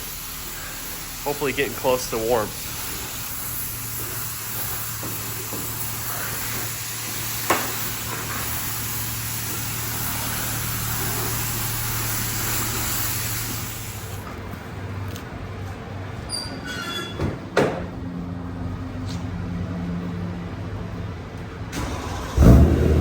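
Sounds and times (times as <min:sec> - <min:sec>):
pressure washer spraying water: 0:00.0 - 0:14.3.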